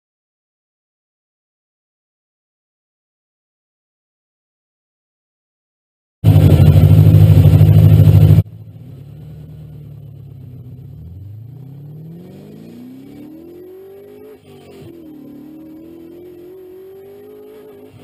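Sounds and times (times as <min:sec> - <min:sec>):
car engine rumbling and revving: 0:06.2 - 0:18.0.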